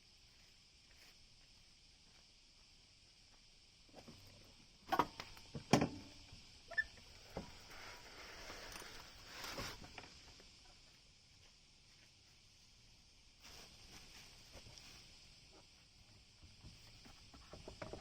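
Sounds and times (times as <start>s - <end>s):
soft rubbing or scraping: 7.4s - 10.2s.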